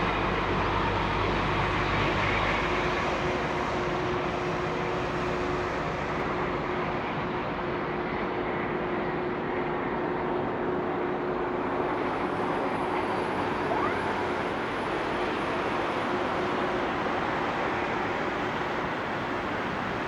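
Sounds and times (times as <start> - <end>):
high engine whine: 0.0 - 20.0
jet engines roaring: 11.5 - 20.0.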